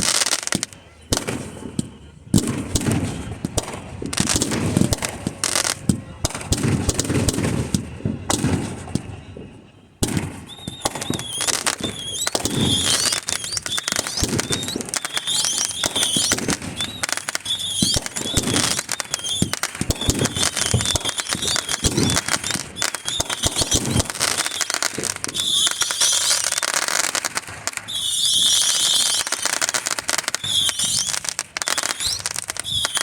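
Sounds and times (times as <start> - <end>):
fireworks deep booms: 0.0 - 29.0
fireworks popping and crackling: 0.0 - 33.0
high wavering whistle: 10.4 - 26.6, 27.8 - 29.6, 30.3 - 33.0.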